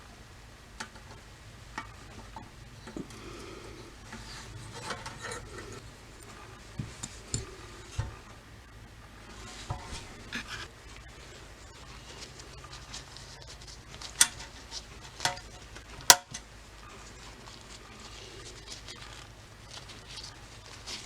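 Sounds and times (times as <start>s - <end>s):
steady low hum: 0.0s - 21.0s
rubbing and scraping: 1.8s - 8.5s, 9.1s - 16.1s.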